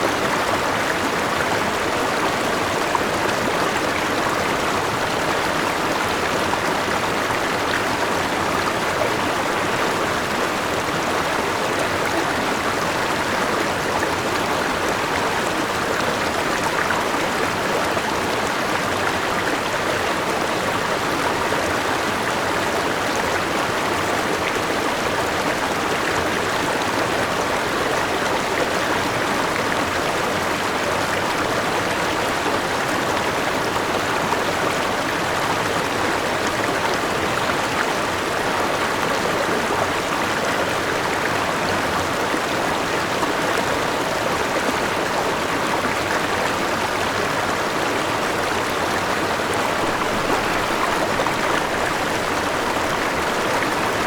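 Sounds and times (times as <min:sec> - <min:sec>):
water rushing and splashing: 0:26.2 - 0:54.0.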